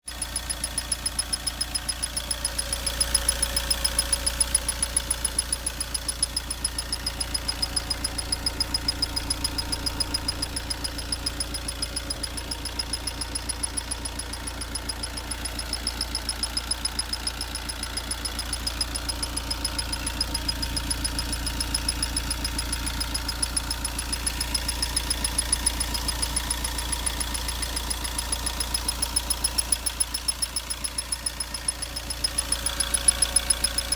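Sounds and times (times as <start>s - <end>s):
regular ticking: 0.0s - 33.9s
diesel engine running: 0.1s - 33.9s.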